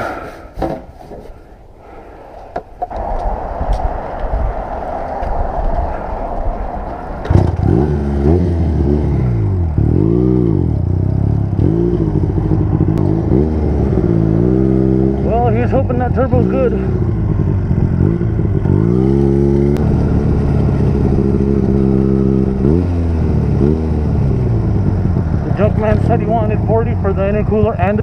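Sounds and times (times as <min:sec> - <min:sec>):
motorcycle engine revving: 0:06.8 - 0:28.0.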